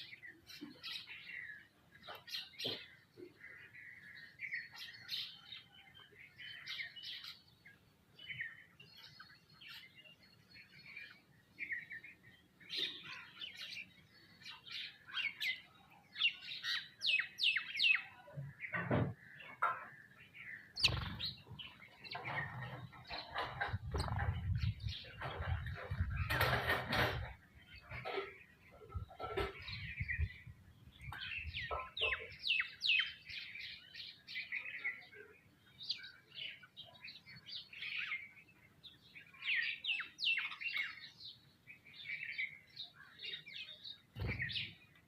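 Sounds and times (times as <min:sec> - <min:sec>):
small birds chirping: 0:00.0 - 0:45.0
low thumps and rumble: 0:22.2 - 0:28.0.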